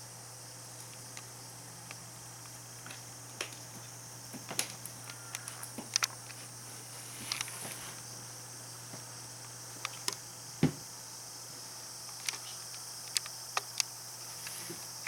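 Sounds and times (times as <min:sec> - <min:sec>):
low hum and hiss: 0:00.0 - 0:15.0
dull thump: 0:10.6 - 0:10.8.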